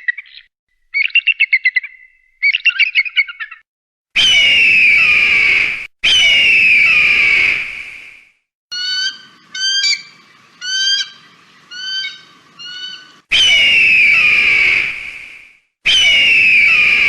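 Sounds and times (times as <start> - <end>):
hawk calls: 8.7 - 15.1
hawk hoarse scream: 13.3 - 15.2, 15.9 - 17.0.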